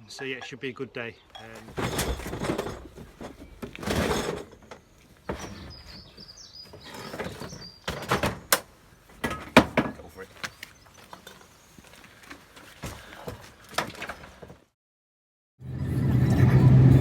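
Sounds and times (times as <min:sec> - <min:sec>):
scuffing and rustling: 0:10.1 - 0:14.6.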